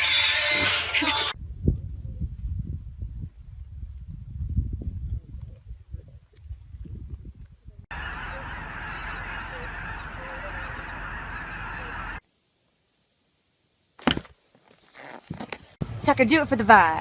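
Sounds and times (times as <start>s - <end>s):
animals grazing and munching: 3.4s - 12.2s
geese honking: 7.9s - 12.2s.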